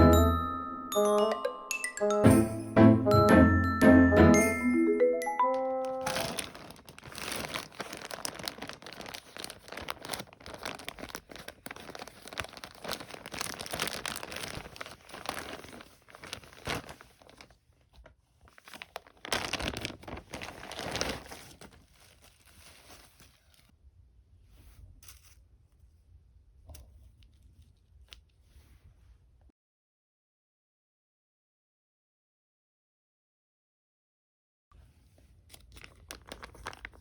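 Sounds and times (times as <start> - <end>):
packaging crinkling and rustling: 5.7 - 23.7, 35.2 - 37.0.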